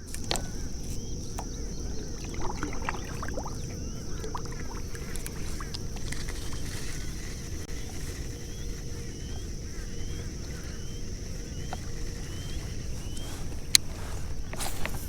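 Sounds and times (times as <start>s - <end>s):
bird chirps: 6.4s - 14.2s.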